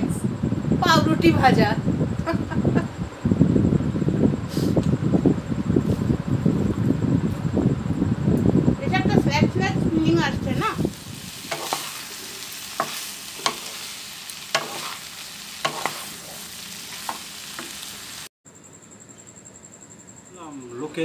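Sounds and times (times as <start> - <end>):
vegetables sizzling in a pan: 10.0 - 18.3.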